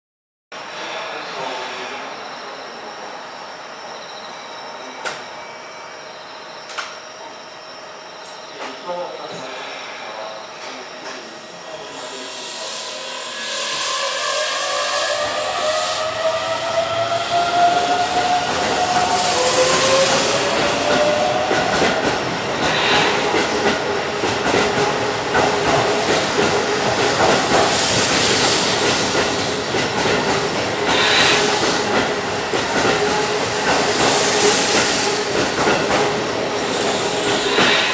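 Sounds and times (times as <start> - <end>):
rail-joint clicks: 4.3 - 5.8
hissing surges: 11.4 - 17.3, 21.9 - 24.4.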